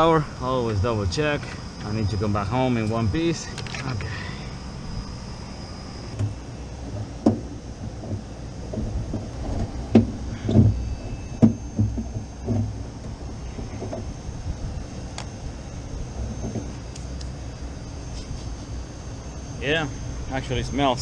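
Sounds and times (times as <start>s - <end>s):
steady low rumble: 0.0s - 21.0s
knocks and clunks on metal unit: 6.2s - 14.1s.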